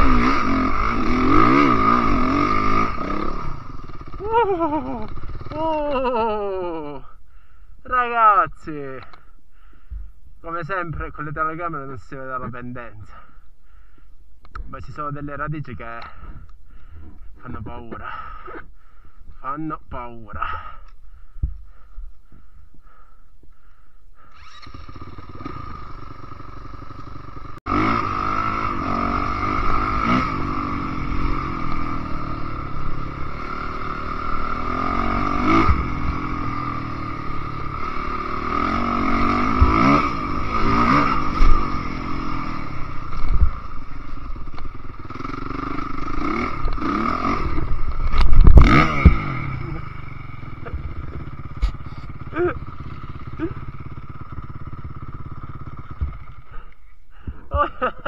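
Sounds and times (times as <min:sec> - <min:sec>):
dirt bike engine revving: 0:00.0 - 0:07.0, 0:24.2 - 0:56.8.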